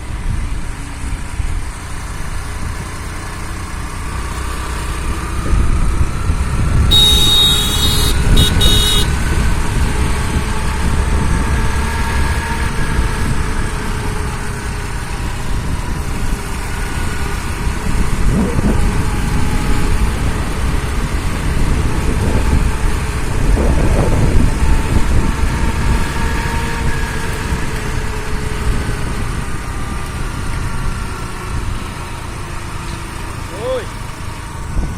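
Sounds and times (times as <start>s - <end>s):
vehicle engine running: 0.0s - 34.9s
short high tone: 6.9s - 9.2s.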